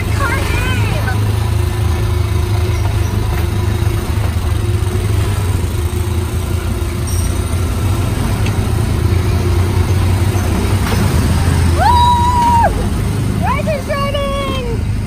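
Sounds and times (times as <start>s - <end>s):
small ride car engine humming: 0.0s - 15.0s.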